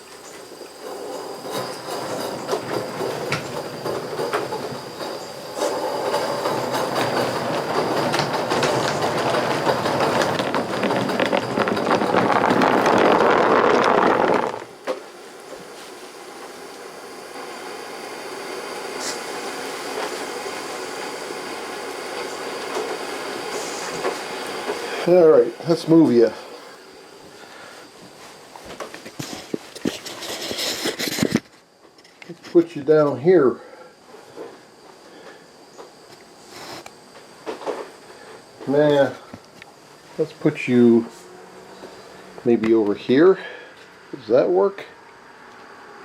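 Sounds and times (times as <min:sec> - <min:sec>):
steam locomotive exhaust: 0:00.0 - 0:28.0
rail noise: 0:00.0 - 0:28.7
steady steam hiss: 0:00.0 - 0:31.8, 0:32.7 - 0:45.0.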